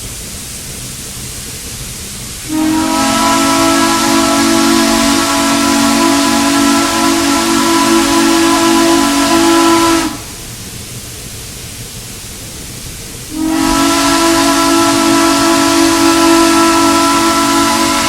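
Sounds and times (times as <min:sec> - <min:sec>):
steam hiss: 0:00.0 - 0:18.0
steam locomotive chime whistle: 0:02.5 - 0:10.4, 0:13.3 - 0:18.0.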